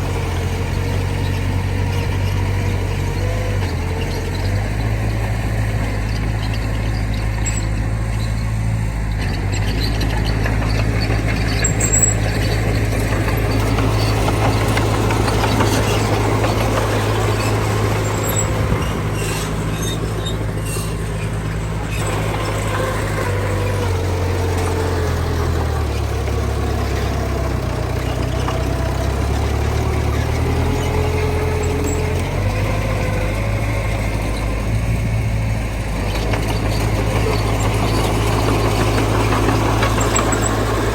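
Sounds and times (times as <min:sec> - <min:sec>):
heavy diesel engine running: 0:00.0 - 0:40.9
high squeaks: 0:09.3 - 0:12.6, 0:13.3 - 0:32.7.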